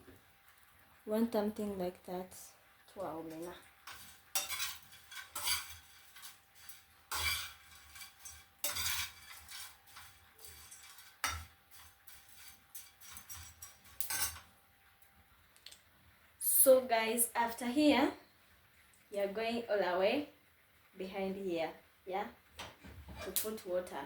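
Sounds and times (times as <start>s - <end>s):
spoon scraping a metal pan: 3.3s - 14.5s.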